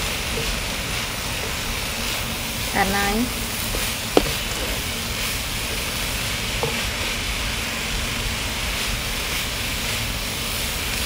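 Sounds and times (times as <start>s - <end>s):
meat sizzling in a pan: 0.0s - 11.0s
wooden spatula scraping a pan: 3.4s - 7.1s.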